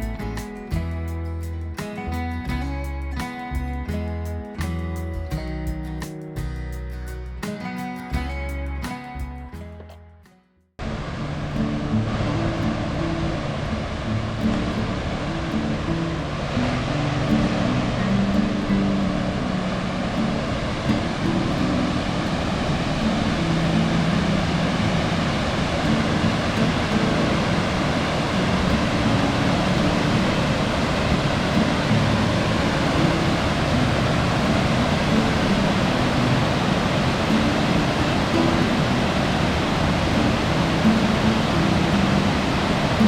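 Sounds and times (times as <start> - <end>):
waterfall rushing over rock: 10.8 - 43.0.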